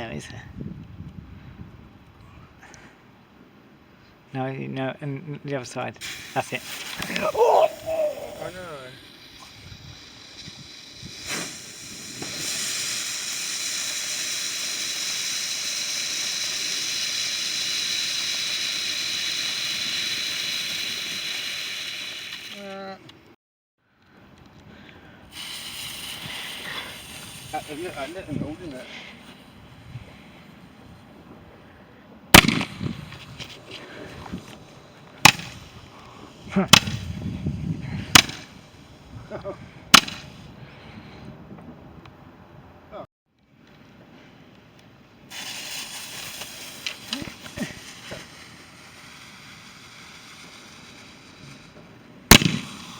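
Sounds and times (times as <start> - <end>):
firework fountain hissing: 6.0 - 23.0, 25.2 - 31.6, 32.3 - 40.5, 45.1 - 52.9
rush of firework lighting: 6.0 - 23.0, 25.0 - 31.7, 32.3 - 40.6, 44.9 - 52.9.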